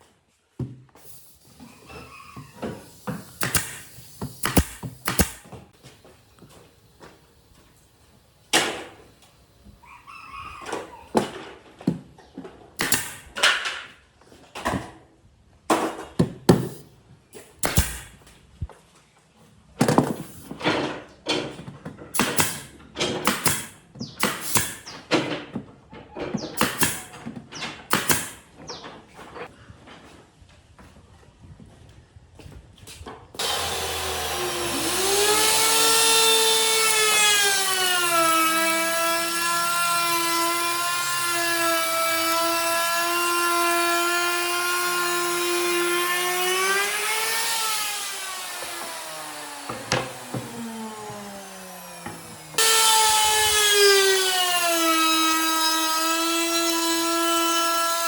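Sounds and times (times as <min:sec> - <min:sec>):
wood and tools knocking: 0:01.6 - 0:07.2, 0:19.8 - 0:29.1, 0:48.4 - 0:58.0.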